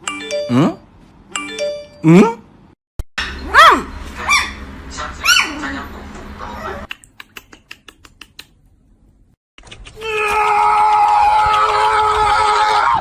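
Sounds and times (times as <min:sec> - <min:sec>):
quick clicks: 0:09.6 - 0:10.0.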